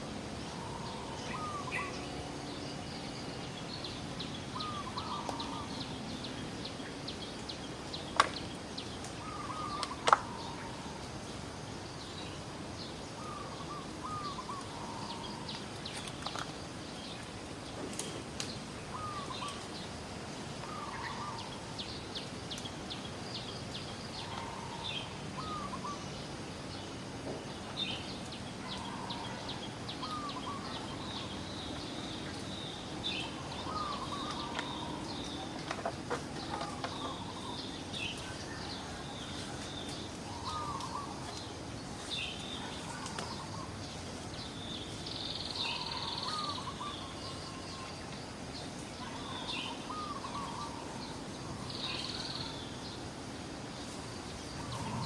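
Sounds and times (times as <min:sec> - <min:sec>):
steady hiss: 0:00.0 - 0:55.0
bird calling: 0:00.5 - 0:02.7, 0:04.4 - 0:06.4, 0:09.2 - 0:11.0, 0:13.2 - 0:15.6, 0:18.9 - 0:19.7, 0:24.2 - 0:26.1, 0:28.6 - 0:31.4, 0:32.2 - 0:43.8, 0:44.7 - 0:48.0, 0:49.0 - 0:52.8, 0:54.6 - 0:55.0.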